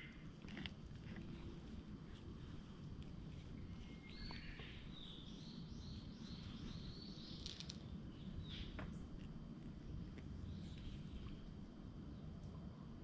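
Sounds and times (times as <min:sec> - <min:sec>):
low outdoor rumble: 0:00.0 - 0:13.0
songbird singing: 0:03.2 - 0:09.1, 0:10.4 - 0:11.4.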